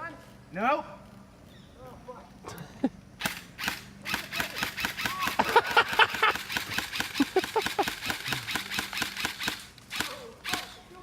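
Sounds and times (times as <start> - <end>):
airsoft rifle firing full-auto: 3.2 - 10.8.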